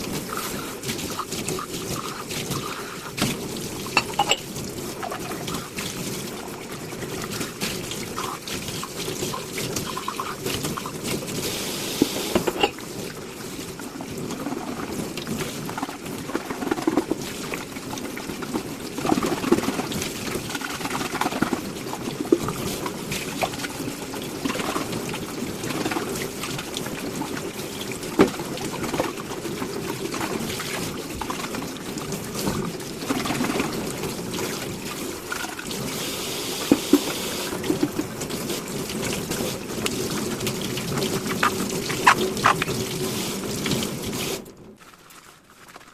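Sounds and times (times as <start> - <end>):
water sloshing and trickling: 0.0 - 36.0, 36.6 - 45.9
dishes clinking: 3.9 - 4.5, 12.3 - 12.8.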